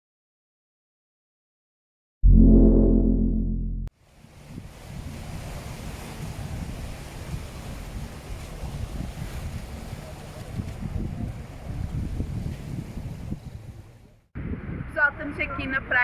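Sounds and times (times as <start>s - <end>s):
loud musical tone: 2.2s - 3.9s
sea wash: 4.0s - 14.2s
wind buffeting microphone: 4.3s - 16.0s.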